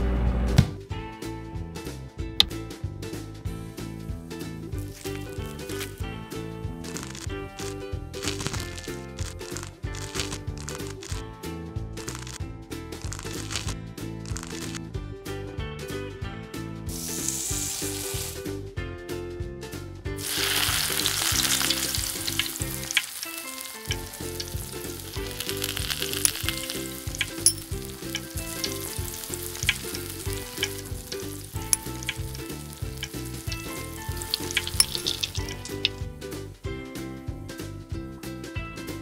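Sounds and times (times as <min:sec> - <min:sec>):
oil popping and crackling: 0:04.6 - 0:11.3, 0:12.0 - 0:14.8, 0:16.9 - 0:18.4, 0:20.2 - 0:36.0
chips sizzling in hot oil: 0:04.8 - 0:06.1, 0:06.9 - 0:11.2, 0:12.0 - 0:12.4, 0:13.0 - 0:14.8, 0:16.9 - 0:18.5, 0:20.2 - 0:36.0.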